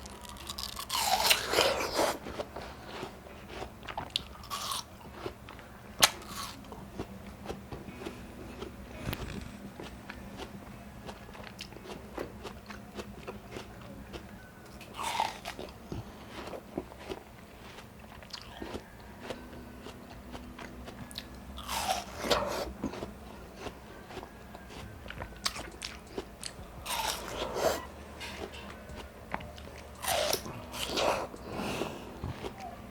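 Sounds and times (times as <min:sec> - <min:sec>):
crunchy chewing: 0:00.0 - 0:32.9
wet watermelon bites: 0:11.1 - 0:27.9, 0:28.9 - 0:31.5.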